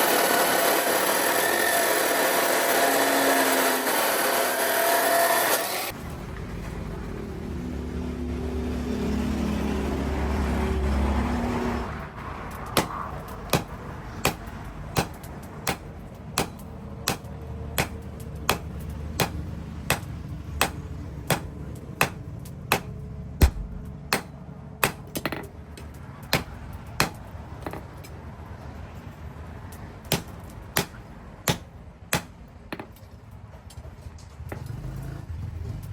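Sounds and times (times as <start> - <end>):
hammer striking steel on anvil: 12.7 - 27.8, 30.1 - 33.0
machine hum: 17.8 - 25.3.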